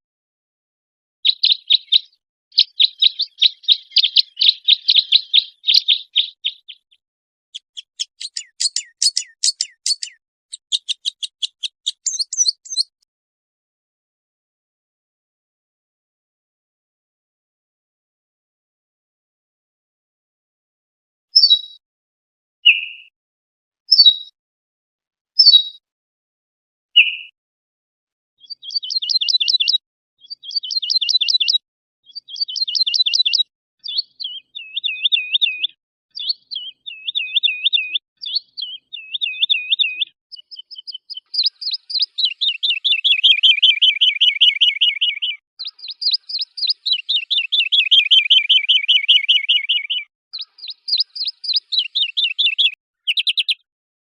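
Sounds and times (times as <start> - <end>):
songbird trilling: 1.3 - 13.0, 21.4 - 21.8, 23.9 - 24.3, 25.4 - 25.8, 27.0 - 27.3, 28.4 - 53.6.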